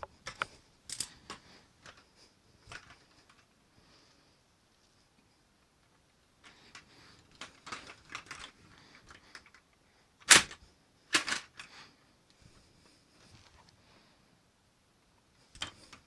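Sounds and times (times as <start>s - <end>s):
plastic clicks and clacks: 0.2s - 2.0s, 2.7s - 3.5s, 6.4s - 9.6s, 10.2s - 11.7s, 15.6s - 16.0s
sharp loud plastic snap: 10.2s - 10.6s.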